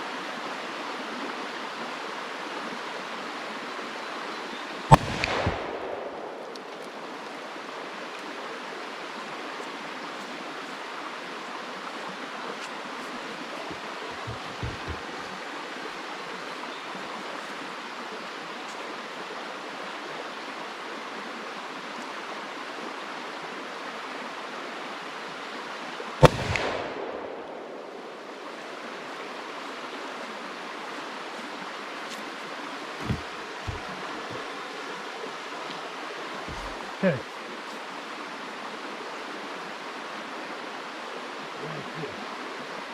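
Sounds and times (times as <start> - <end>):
gunshot with echo: 4.9 - 6.8, 14.2 - 15.1, 26.2 - 28.2.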